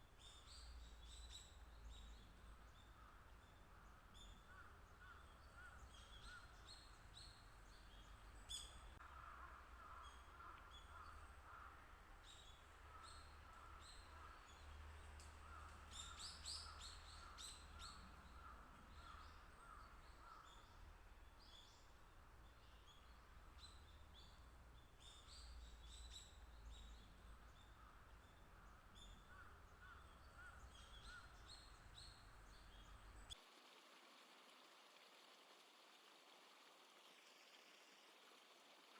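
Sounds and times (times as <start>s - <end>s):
wild birds chirping: 0.2s - 33.4s.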